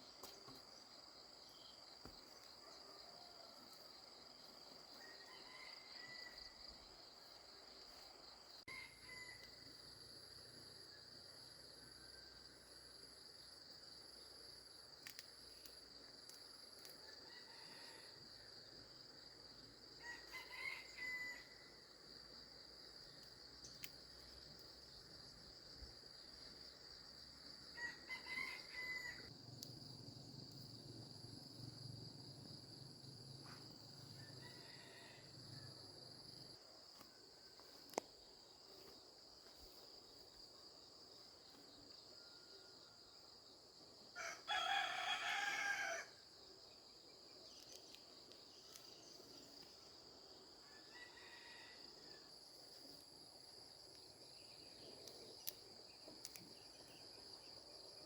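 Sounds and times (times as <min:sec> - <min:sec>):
high drone of insects: 0:00.0 - 0:58.0
rooster crowing: 0:05.0 - 0:06.6, 0:08.7 - 0:09.6, 0:17.2 - 0:18.2, 0:20.0 - 0:21.7, 0:27.7 - 0:29.3, 0:34.2 - 0:35.7, 0:44.2 - 0:46.2, 0:50.6 - 0:52.2.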